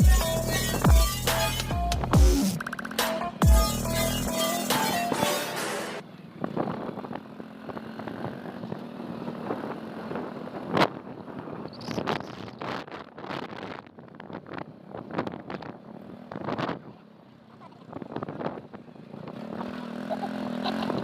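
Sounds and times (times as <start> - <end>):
motorbike rumble: 0.0 - 21.0
wind buffeting microphone: 6.0 - 19.8.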